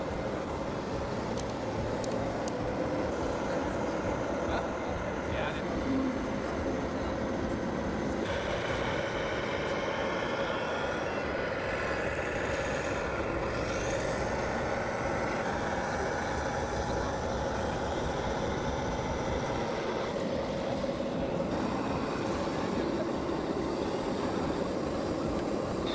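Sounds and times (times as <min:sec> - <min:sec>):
toy tractor motor whirring: 0:08.3 - 0:20.1.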